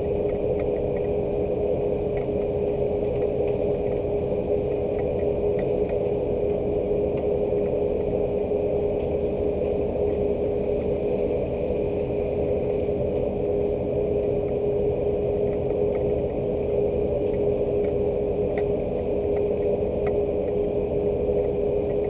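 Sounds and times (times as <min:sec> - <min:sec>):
machine hum: 0:00.0 - 0:22.0
faint drip ticks: 0:00.2 - 0:01.2, 0:02.1 - 0:08.2, 0:15.3 - 0:20.7, 0:21.4 - 0:22.0.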